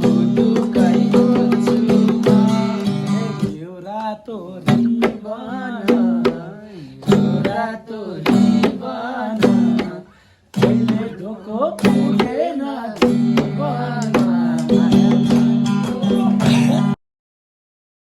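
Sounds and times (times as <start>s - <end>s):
song with plucked strings and drums: 0.0s - 3.6s, 4.6s - 12.4s, 13.0s - 17.0s.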